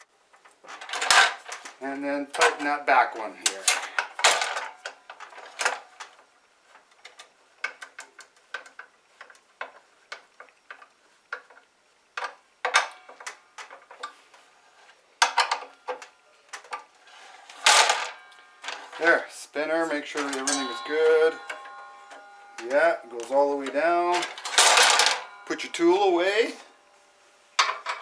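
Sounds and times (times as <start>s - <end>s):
small metal clinks: 19.9s - 26.9s.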